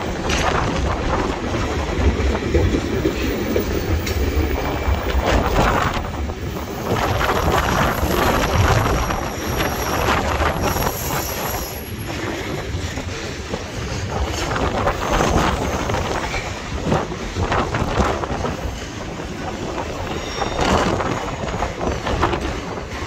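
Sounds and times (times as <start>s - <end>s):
freight train cars rolling: 0.0s - 23.0s
wind buffeting microphone: 0.0s - 23.0s.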